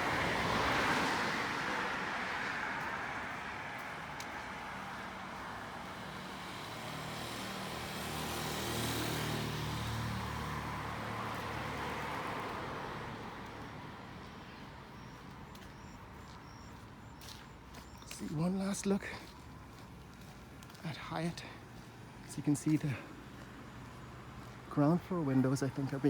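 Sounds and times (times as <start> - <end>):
vehicle driving past: 0.0 - 15.0.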